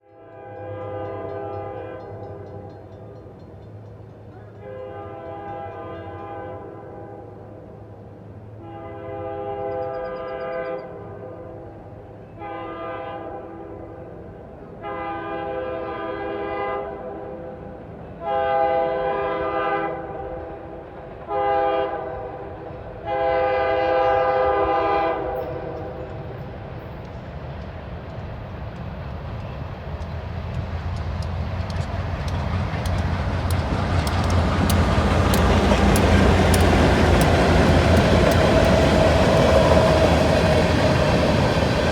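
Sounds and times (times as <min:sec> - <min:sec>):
locomotive horn blasts: 0:00.0 - 0:02.7, 0:04.5 - 0:07.4, 0:08.6 - 0:11.6, 0:12.3 - 0:14.0, 0:14.8 - 0:17.6, 0:18.2 - 0:20.5, 0:21.2 - 0:26.0
diesel engine rumble: 0:30.6 - 0:41.9.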